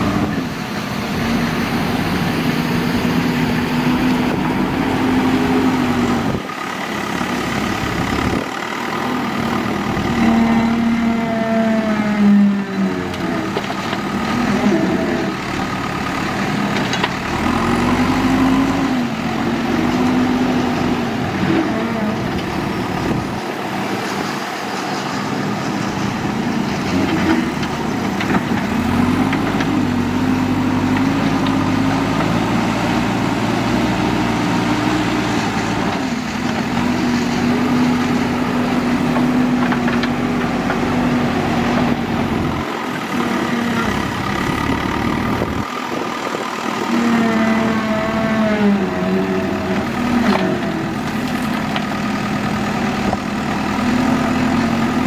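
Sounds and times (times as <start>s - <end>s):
heavy diesel engine revving: 0.0s - 55.0s.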